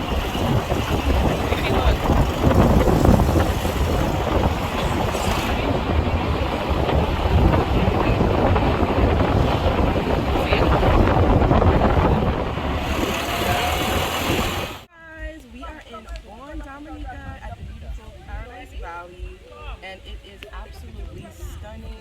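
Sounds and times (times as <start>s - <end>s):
vehicle engine and road rumble: 0.0s - 14.9s
wind buffeting microphone: 0.0s - 22.0s.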